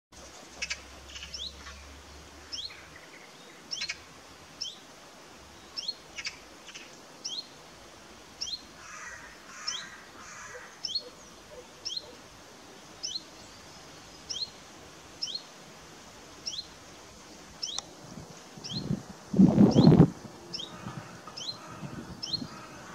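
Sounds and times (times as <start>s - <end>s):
faint outdoor background noise: 0.1s - 22.9s
small bird chirping: 0.3s - 4.0s, 13.0s - 14.6s, 15.2s - 15.5s, 16.4s - 16.8s, 17.6s - 17.9s, 18.6s - 19.0s.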